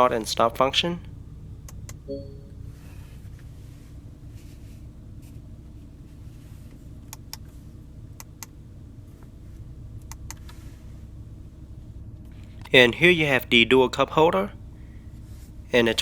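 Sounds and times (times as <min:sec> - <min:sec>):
low cabin hum: 0:00.0 - 0:16.0
short beep: 0:02.1 - 0:03.0
car console switch clicks: 0:10.0 - 0:10.6.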